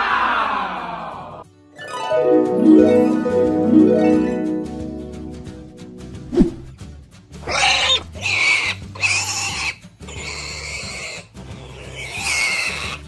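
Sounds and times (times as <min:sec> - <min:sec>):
cartoon pig calls: 0:07.4 - 0:13.0.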